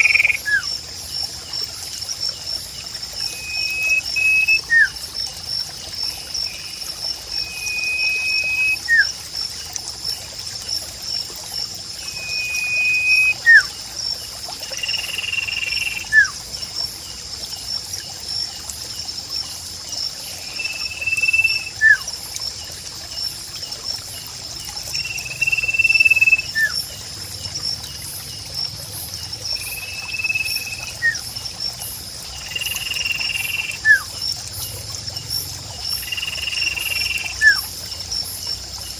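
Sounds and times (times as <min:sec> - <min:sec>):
bird whistling call: 0:00.0 - 0:00.7, 0:03.3 - 0:04.9, 0:07.4 - 0:09.1, 0:12.1 - 0:13.7, 0:15.2 - 0:16.4, 0:20.5 - 0:22.0, 0:25.4 - 0:26.8, 0:29.8 - 0:31.2, 0:32.8 - 0:34.1
high insect trill: 0:00.0 - 0:38.9
trickling water: 0:00.0 - 0:38.9.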